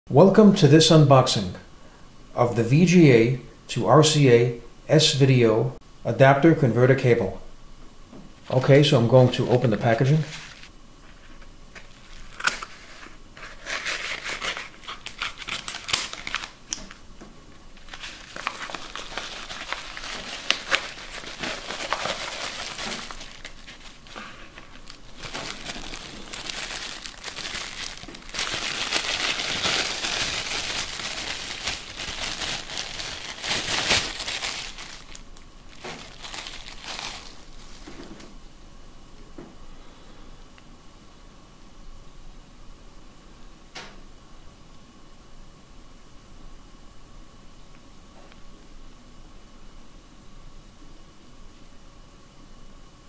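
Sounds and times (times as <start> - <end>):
packaging crinkling and rustling: 8.4 - 17.0, 17.6 - 38.2.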